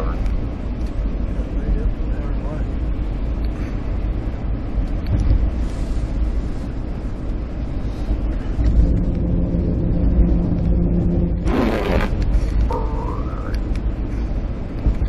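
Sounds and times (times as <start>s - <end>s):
car road noise rumble: 0.0s - 15.0s
engine hum: 0.0s - 15.0s
loud swish: 10.2s - 12.5s.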